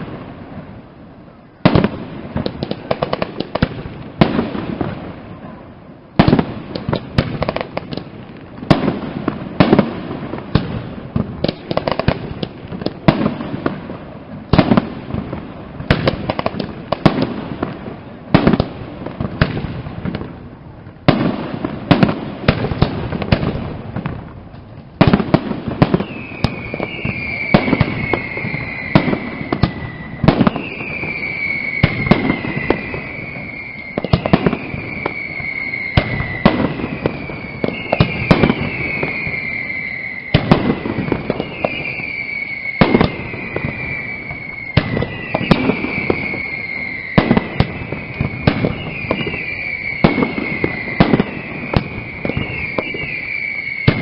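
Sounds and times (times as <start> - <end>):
falling firework whistle: 0.0 - 54.0.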